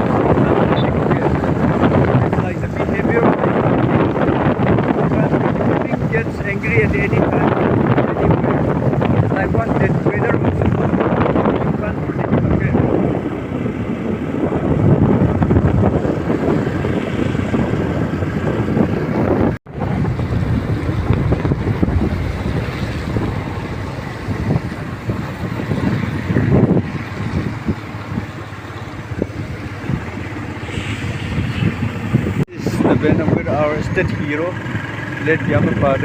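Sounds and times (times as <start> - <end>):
vehicle road and engine noise: 0.0 - 36.0
wind rushing over microphone: 0.0 - 36.0.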